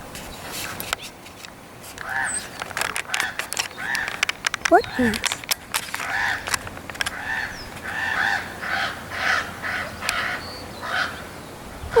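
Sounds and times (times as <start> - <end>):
crows cawing: 2.0 - 4.3, 6.0 - 11.3.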